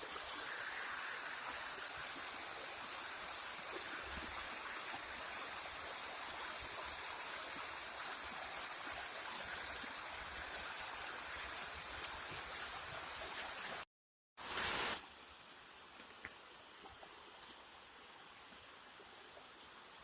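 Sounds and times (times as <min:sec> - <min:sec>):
flowing water: 0:00.0 - 0:20.0
faint ticks: 0:16.0 - 0:17.6.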